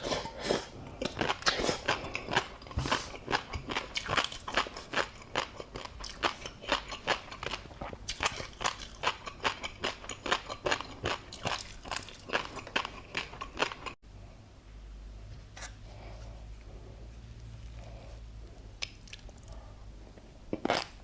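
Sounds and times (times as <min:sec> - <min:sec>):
crunchy eating: 0:00.0 - 0:14.0.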